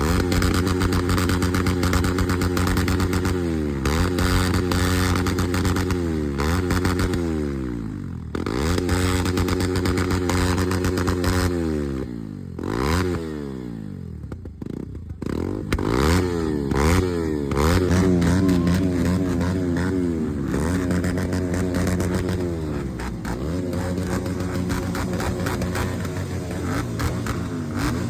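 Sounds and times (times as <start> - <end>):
motorcycle engines revving: 0.0 - 28.0
exhaust crackles: 14.2 - 28.0.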